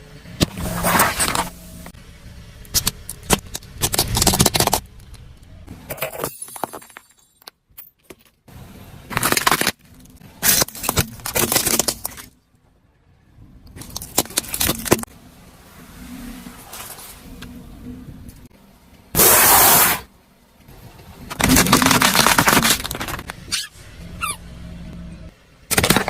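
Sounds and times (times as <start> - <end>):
brittle objects crunching and cracking: 9.1 - 12.3, 21.3 - 23.4.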